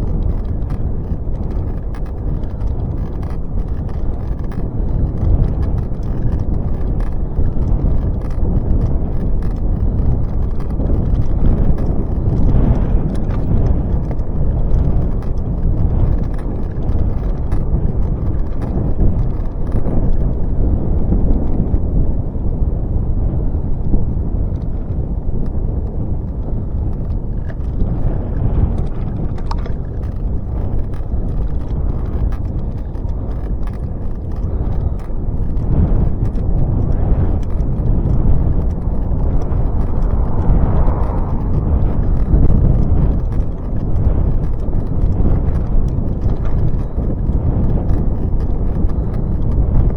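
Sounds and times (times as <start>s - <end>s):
faint clicks: 0.0s - 20.4s, 24.5s - 49.9s
bicycle tyres rolling: 0.0s - 49.9s
wind buffeting microphone: 0.0s - 49.9s
bicycle pedal squeak: 27.0s - 49.9s.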